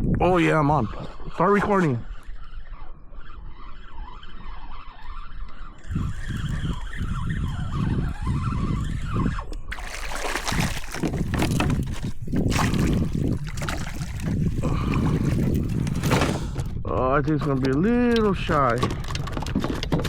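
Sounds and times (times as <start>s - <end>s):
water rushing and splashing: 9.7s - 16.5s.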